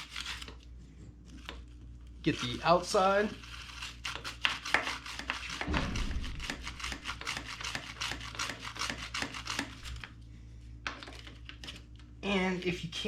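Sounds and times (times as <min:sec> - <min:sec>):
brush scrubbing a chain: 0:02.2 - 0:10.0.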